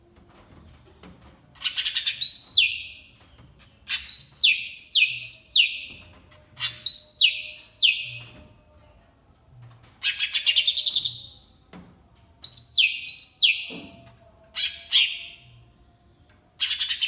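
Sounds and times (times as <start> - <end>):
songbird singing: 1.5 - 11.5, 12.4 - 15.6.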